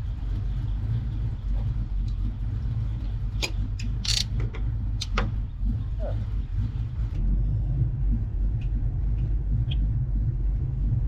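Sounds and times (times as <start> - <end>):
car engine low rumble: 0.0 - 11.0
sharp clicks or rattles: 4.0 - 4.4.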